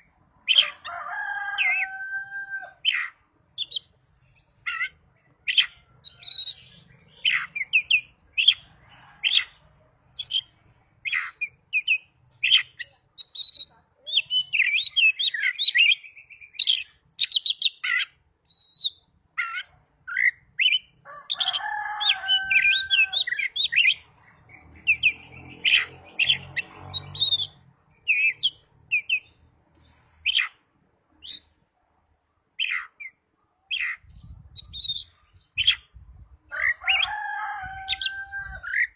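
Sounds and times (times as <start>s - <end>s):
songbird singing whistles and chirps: 4.5s - 8.7s, 10.2s - 21.0s, 22.2s - 30.6s.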